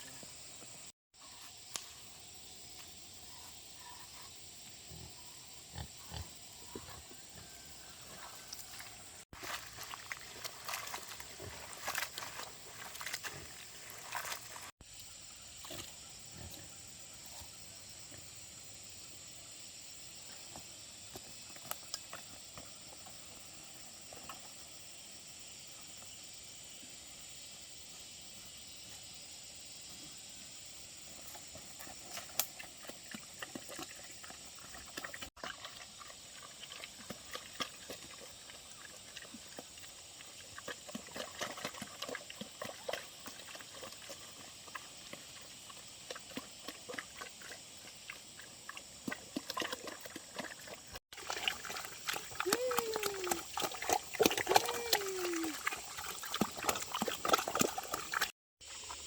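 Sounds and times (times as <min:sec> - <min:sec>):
insects hissing: 0:00.0 - 0:37.0, 0:58.1 - 0:59.0
pigs grunting: 0:04.8 - 0:07.6.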